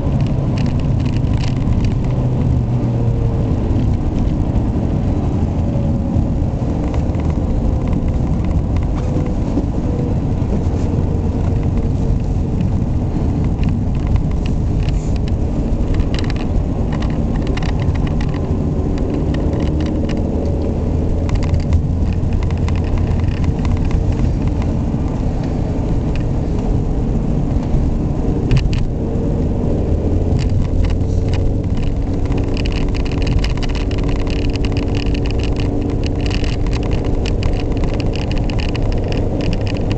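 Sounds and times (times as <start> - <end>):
car engine running: 0.0 - 39.9
tyre and road noise: 0.0 - 39.9
light clicks and knocks: 10.4 - 26.7, 30.3 - 39.9.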